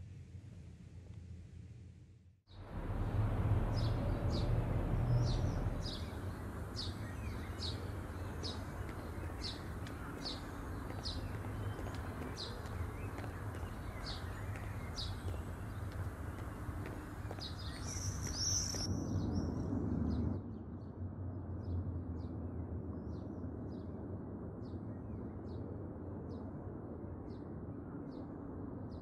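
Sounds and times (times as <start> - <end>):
low background hum: 2.6 - 28.8
small bird chirping: 5.2 - 19.5.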